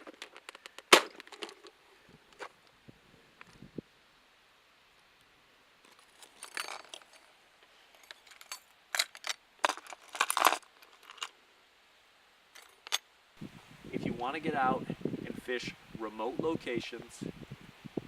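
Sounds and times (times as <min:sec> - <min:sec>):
small hard objects clinking: 0:05.9 - 0:07.3, 0:08.0 - 0:11.3.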